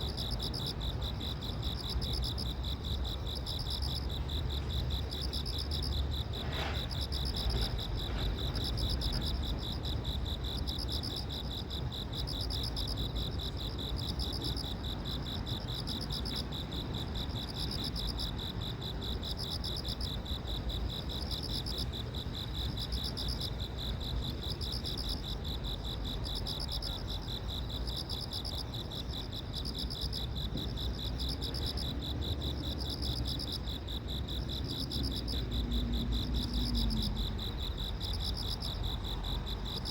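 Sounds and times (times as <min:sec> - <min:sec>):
insects chirping: 0:00.0 - 0:39.9
low steady rumble: 0:34.3 - 0:39.9.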